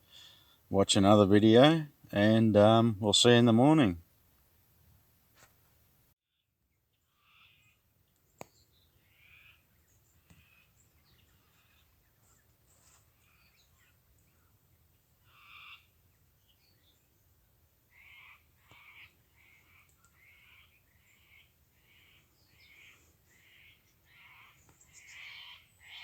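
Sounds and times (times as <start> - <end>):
faint bird calls: 7.0 - 26.0.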